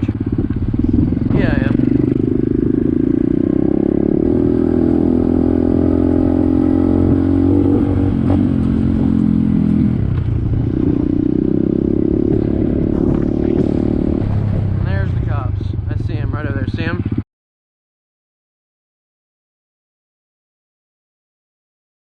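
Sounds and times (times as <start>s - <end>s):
pit bike engine running: 0.0s - 17.2s.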